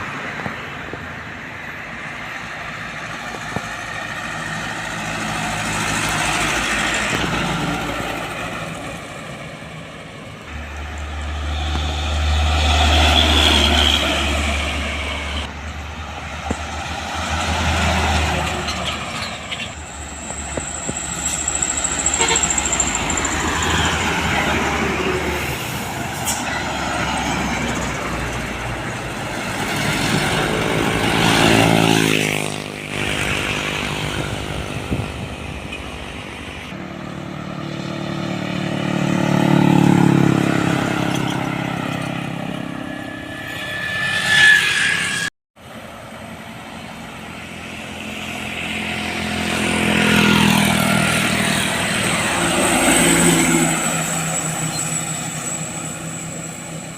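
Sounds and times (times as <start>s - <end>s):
trucks driving past: 0.0s - 56.9s
brief squeal: 19.2s - 24.0s, 42.9s - 45.3s, 53.7s - 56.9s.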